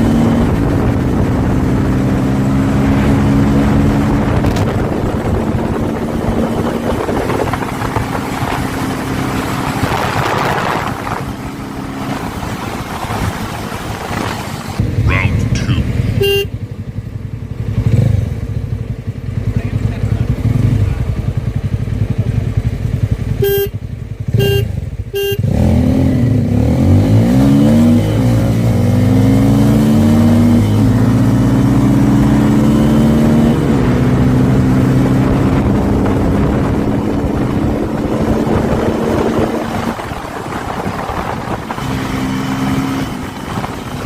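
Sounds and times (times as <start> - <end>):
motorcycles accelerating through gears: 0.0 - 44.0
motorcycle engines idling: 14.8 - 25.3
short electronic beeps: 15.6 - 16.5, 23.4 - 23.8, 24.4 - 25.4.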